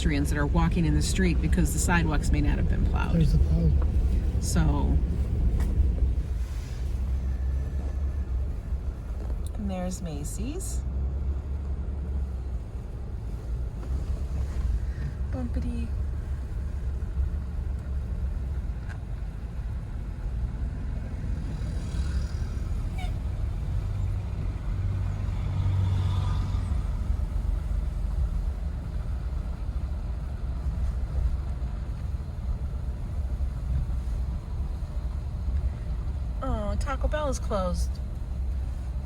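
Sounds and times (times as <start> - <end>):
engine and tyres rumble: 0.0 - 39.0
faint traffic tones: 0.0 - 39.0.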